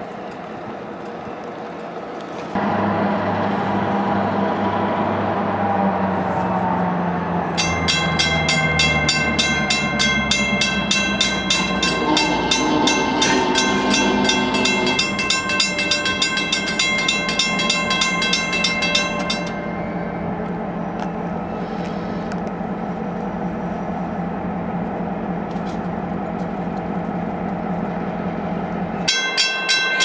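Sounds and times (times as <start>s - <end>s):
diesel locomotive rumble: 0.0s - 30.0s
crossing bell ringing rapidly: 7.6s - 20.5s, 29.0s - 30.0s.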